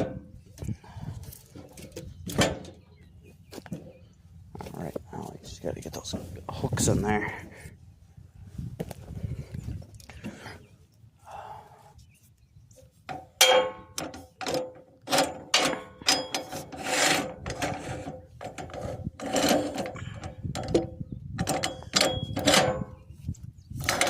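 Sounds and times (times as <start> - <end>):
metal hooks clanking on log: 13.1 - 23.1.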